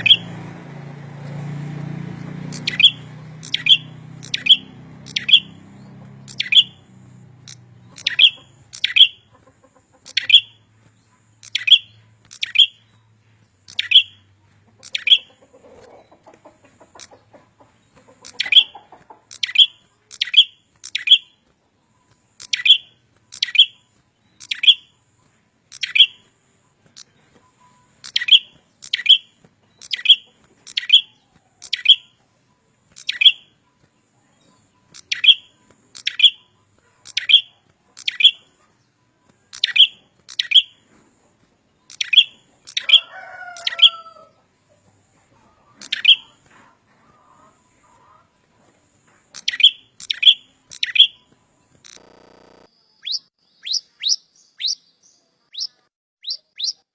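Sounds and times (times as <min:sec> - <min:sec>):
bird sharp high chirps: 0:00.0 - 0:00.5, 0:02.4 - 0:16.0, 0:17.8 - 0:32.2, 0:32.9 - 0:33.6, 0:34.4 - 0:38.7, 0:39.3 - 0:40.9, 0:41.8 - 0:44.2, 0:45.8 - 0:46.4, 0:49.3 - 0:56.9
lower gliding bird call: 0:02.6 - 0:05.6.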